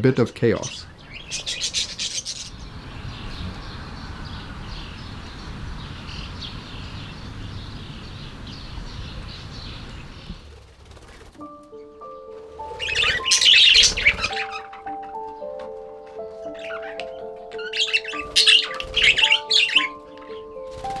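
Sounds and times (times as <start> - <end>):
budgerigars chattering and chirping: 0.6 - 11.3, 12.7 - 14.8, 16.6 - 17.0, 17.6 - 20.0
low steady rumble: 0.9 - 11.4.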